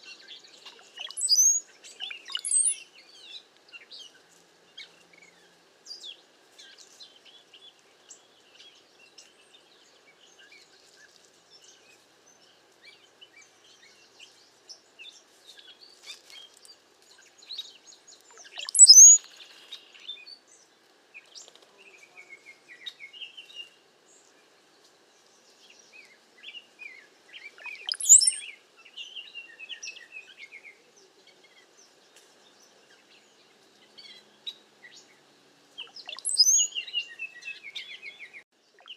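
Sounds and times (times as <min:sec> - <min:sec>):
cowbirds chirping and squeaking: 0:18.4 - 0:19.2, 0:27.6 - 0:28.4.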